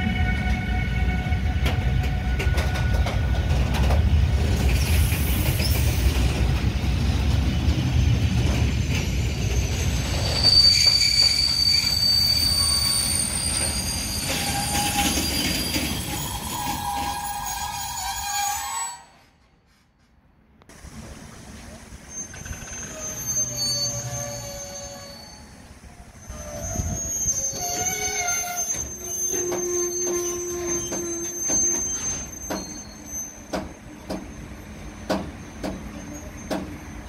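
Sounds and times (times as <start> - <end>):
freight train wheels rumbling: 0.0 - 37.0
rail clicks: 0.1 - 18.2, 19.4 - 24.2, 26.2 - 37.0
high wheel squeal: 8.7 - 19.2, 21.9 - 36.7.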